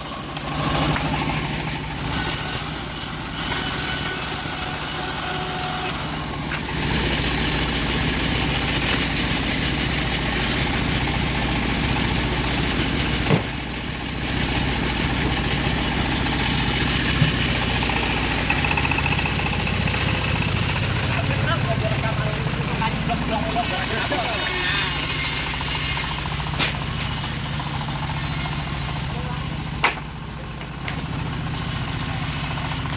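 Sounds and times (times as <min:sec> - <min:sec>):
sawmill engine running: 0:00.0 - 0:32.9.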